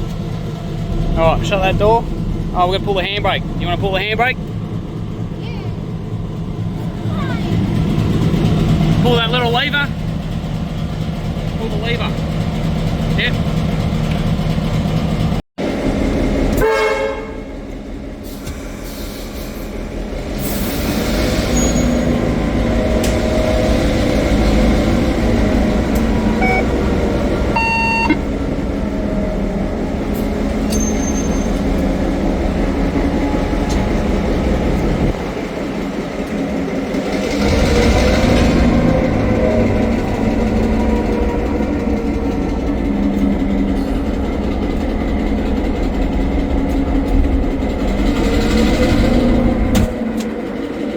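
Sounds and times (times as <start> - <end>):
locomotive diesel engine running: 0.0 - 50.9
short horn toots: 16.6 - 17.4.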